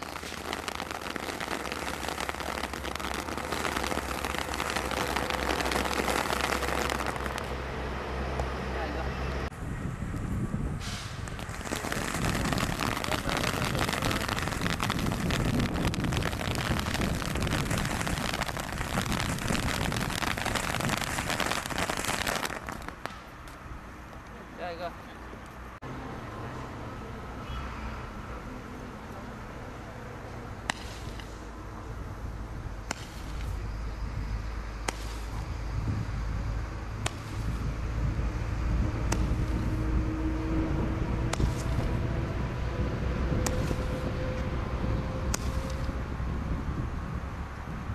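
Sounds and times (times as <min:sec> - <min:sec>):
firework hissing and crackling: 0:00.0 - 0:07.6, 0:10.6 - 0:23.4, 0:30.6 - 0:36.4, 0:37.0 - 0:42.1, 0:43.3 - 0:44.2, 0:45.3 - 0:46.0.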